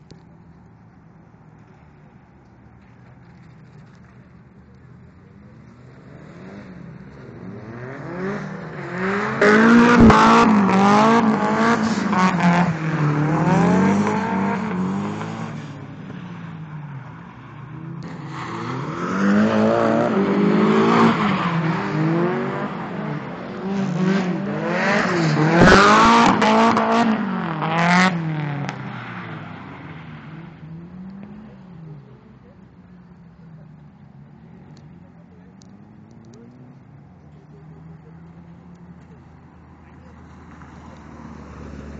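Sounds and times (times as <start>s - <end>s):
car engine revving hard: 7.4s - 15.6s, 18.3s - 28.7s.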